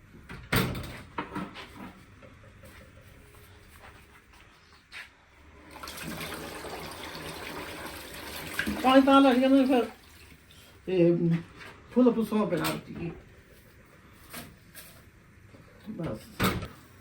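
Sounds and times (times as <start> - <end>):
water running from tap: 5.6 - 10.8.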